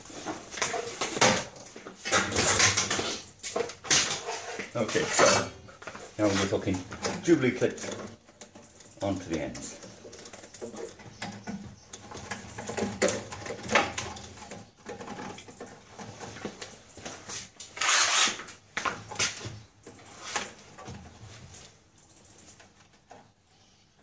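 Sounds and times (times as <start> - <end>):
small clicks knocks and rustles: 0.2 - 17.8, 18.4 - 23.4
scraping rustle of hose: 2.4 - 10.2, 15.0 - 18.6, 19.2 - 21.7.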